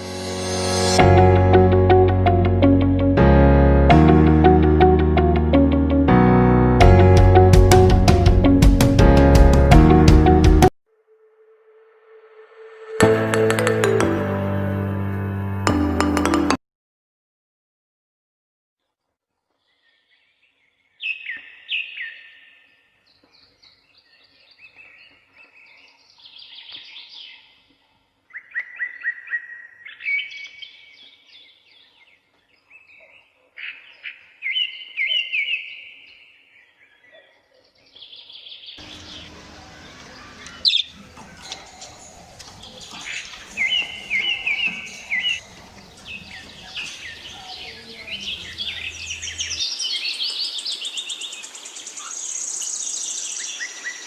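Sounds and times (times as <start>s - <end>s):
birds chirping and twittering: 19.6s - 54.0s.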